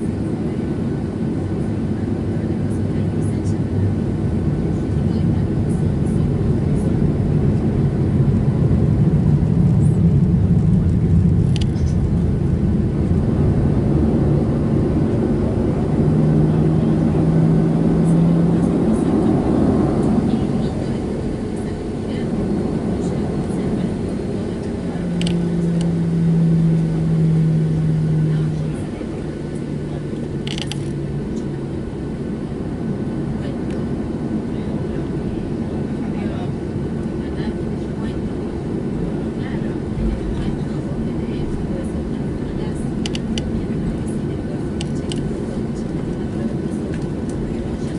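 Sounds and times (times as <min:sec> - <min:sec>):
jet engine cabin rumble: 0:00.0 - 0:47.9
steady low hum: 0:00.0 - 0:47.9.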